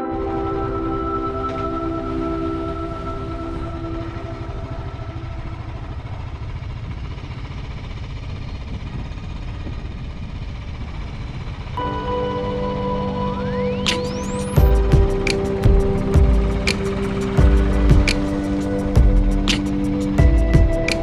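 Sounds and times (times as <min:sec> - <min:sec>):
background music: 0:00.0 - 0:06.2, 0:11.8 - 0:21.0
motorcycle engine rumble: 0:00.0 - 0:21.0
road noise: 0:00.0 - 0:21.0.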